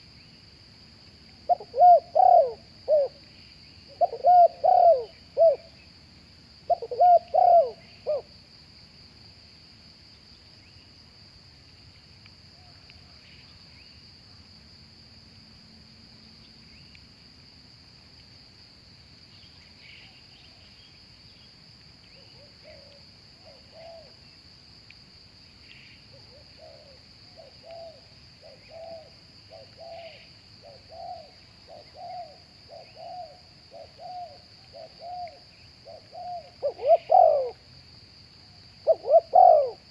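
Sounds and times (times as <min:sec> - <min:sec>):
high insect drone: 0:00.0 - 0:39.9
doves cooing: 0:01.5 - 0:03.2, 0:03.9 - 0:05.7, 0:06.7 - 0:08.3, 0:26.1 - 0:37.6, 0:38.8 - 0:39.9.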